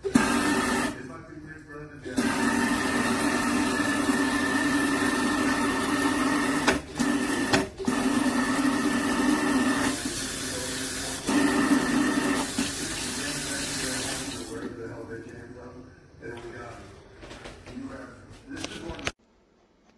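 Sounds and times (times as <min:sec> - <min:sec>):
faucet water running into sink: 0:00.0 - 0:01.0, 0:02.1 - 0:14.7.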